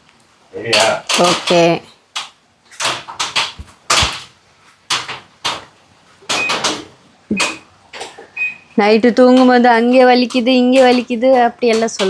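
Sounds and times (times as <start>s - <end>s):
irregular thuds and knocks: 2.8s - 8.3s, 9.2s - 12.0s.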